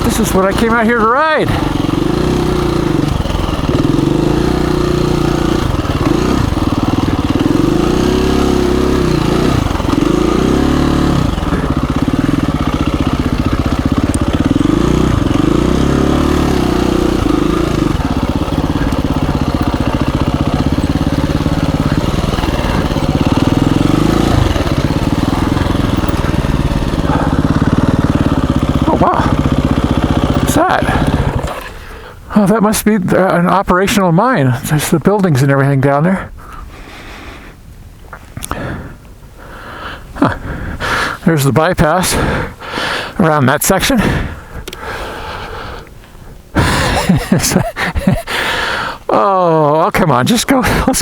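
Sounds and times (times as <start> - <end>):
dirt bike engine revving: 0.0 - 32.8, 46.6 - 48.9.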